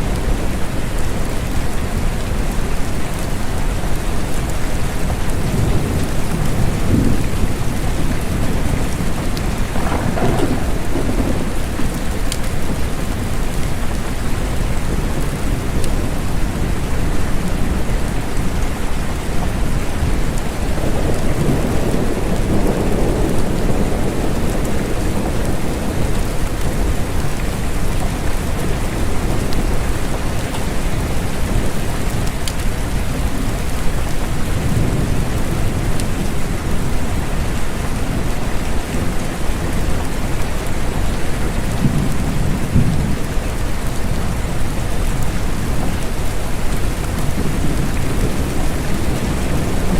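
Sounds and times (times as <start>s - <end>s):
steady rain falling: 0.0s - 49.9s
distant thunder rumbles: 5.5s - 13.3s.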